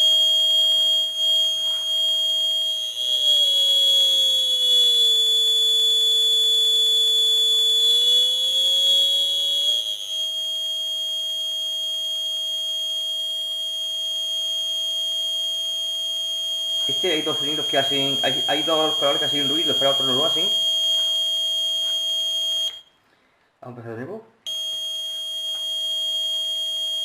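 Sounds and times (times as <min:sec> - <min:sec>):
high-pitched buzzer tone: 0:00.0 - 0:11.8, 0:15.6 - 0:22.8, 0:24.5 - 0:27.0.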